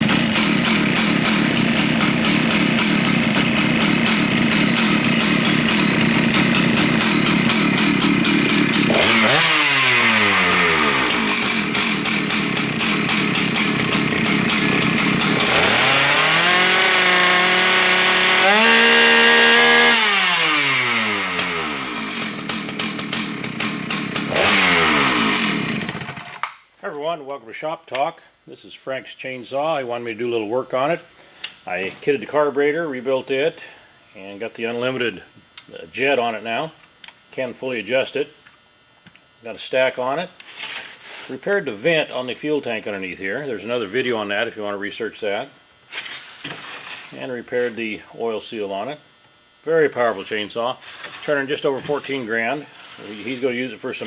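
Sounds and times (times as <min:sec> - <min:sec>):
chainsaw idling and revving: 0:00.0 - 0:26.5, 0:49.8 - 0:54.0.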